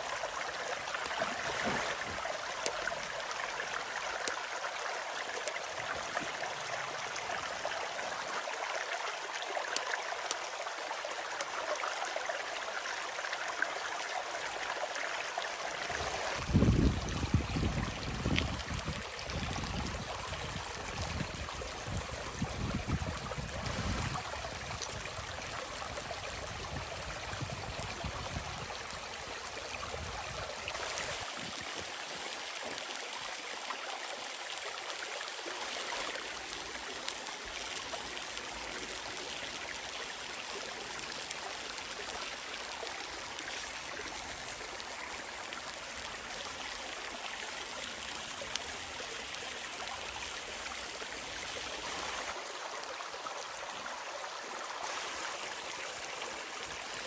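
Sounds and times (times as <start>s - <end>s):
running water rushing: 0.0s - 57.0s
low wind buffeting: 16.4s - 24.8s.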